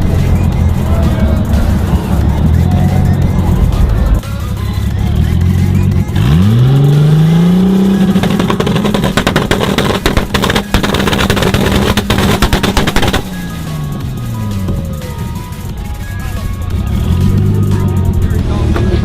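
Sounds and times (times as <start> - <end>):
car engine revving: 0.0 - 19.0
exhaust popping and banging: 5.9 - 19.0.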